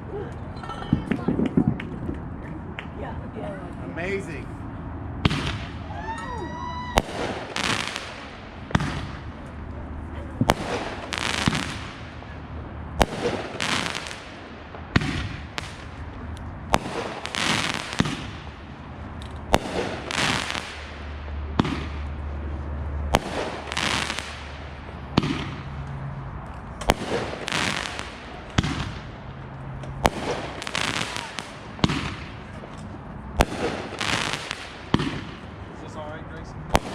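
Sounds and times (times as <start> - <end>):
firework bangs: 0.9 - 2.3, 5.2 - 22.3, 23.0 - 35.6, 36.7 - 36.9
hissing crackle of fireworks: 5.2 - 35.9.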